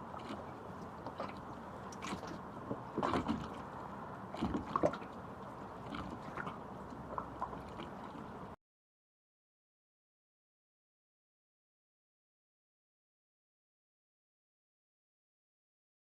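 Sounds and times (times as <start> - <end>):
steady background hiss: 0.0 - 8.6
water sloshing and splashing: 0.0 - 8.6.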